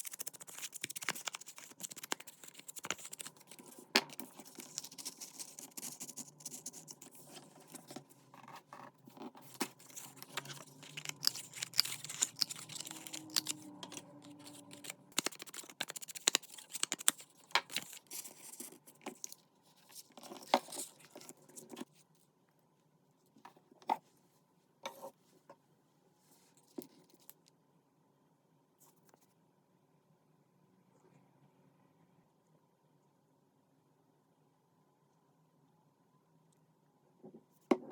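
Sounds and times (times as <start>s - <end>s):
paper rustling: 0.0s - 21.9s.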